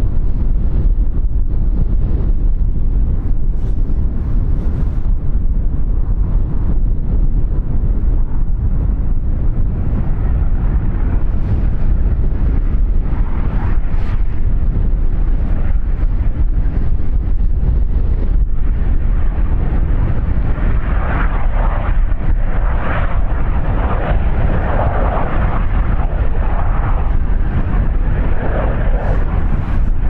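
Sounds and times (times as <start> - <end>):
strong wind buffeting microphone: 0.0 - 30.0.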